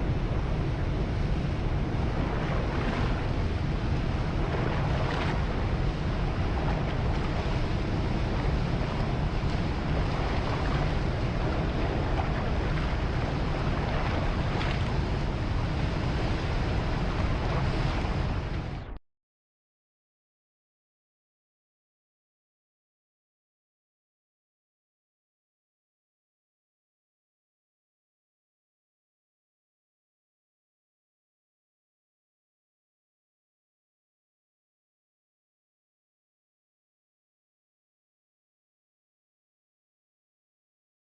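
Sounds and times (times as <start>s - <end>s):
ocean surf rushing: 0.0s - 19.0s
wind buffeting microphone: 0.0s - 19.0s.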